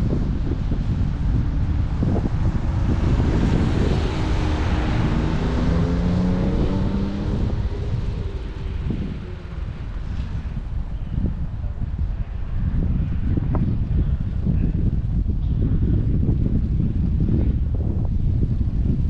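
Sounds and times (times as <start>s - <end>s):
passing motor vehicle hum: 0.0s - 15.0s
wind buffeting microphone: 0.0s - 19.0s.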